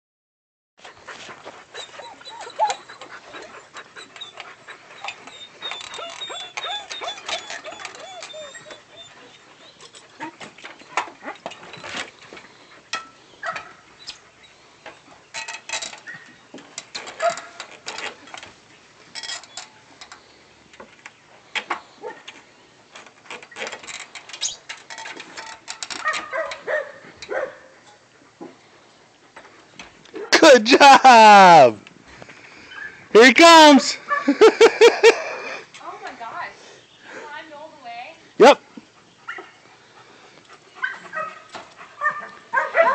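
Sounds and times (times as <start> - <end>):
paws scraping on ladder rungs: 0.8 - 30.4, 38.6 - 42.9
puppy whining: 1.0 - 11.9.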